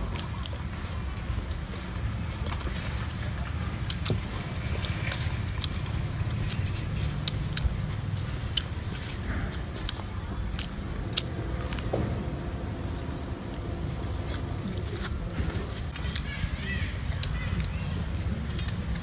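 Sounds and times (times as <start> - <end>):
low steady rumble: 0.0 - 19.0
people chewing soft cakes: 0.0 - 19.0
mouth clicks and smacks: 1.4 - 12.0, 13.3 - 19.0.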